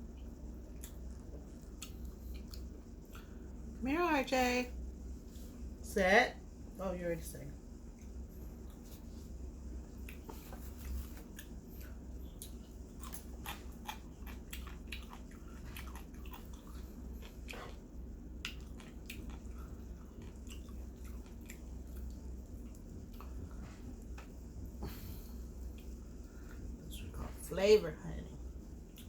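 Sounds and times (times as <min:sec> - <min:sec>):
person chewing chicken: 0:00.7 - 0:03.3, 0:09.9 - 0:24.2.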